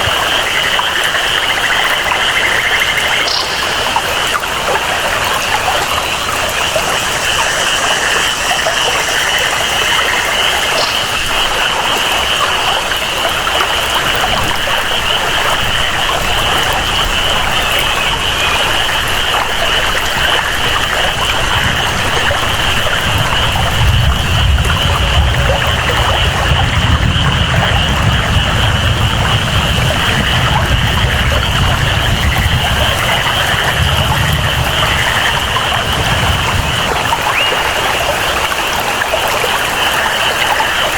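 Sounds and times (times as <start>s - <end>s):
flowing water: 0.0s - 40.9s
rain: 0.0s - 40.9s
high-pitched jungle chorus: 1.2s - 13.4s, 34.8s - 39.0s
low rumble: 21.2s - 37.8s.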